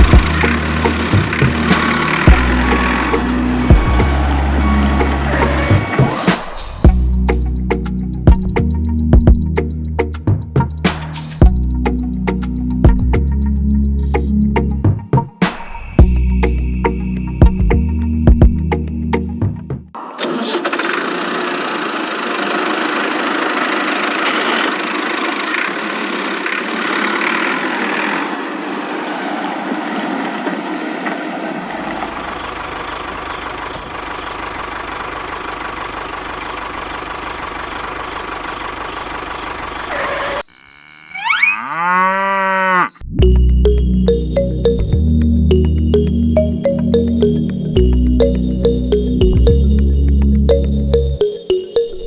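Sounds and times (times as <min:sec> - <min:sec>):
small motor whirring: 0:39.9 - 0:41.7
tone sweeping up and down: 0:40.2 - 0:41.9.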